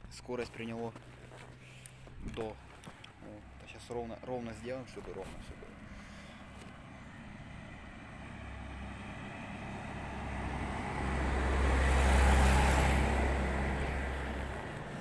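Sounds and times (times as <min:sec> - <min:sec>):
vehicle passing by: 0:05.6 - 0:15.0.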